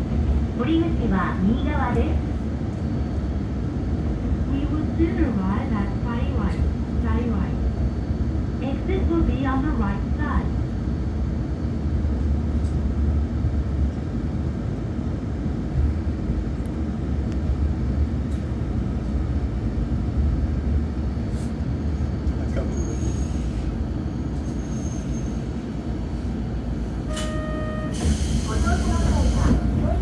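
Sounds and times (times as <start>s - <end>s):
railcar engine and wheels rumbling: 0.0s - 30.0s.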